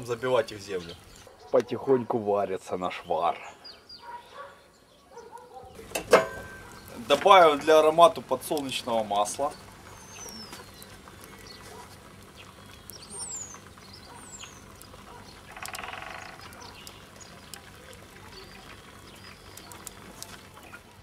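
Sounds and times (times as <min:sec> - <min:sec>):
faint scattered clicks: 0:09.6 - 0:20.9
buzzy bird rattle: 0:14.9 - 0:16.9.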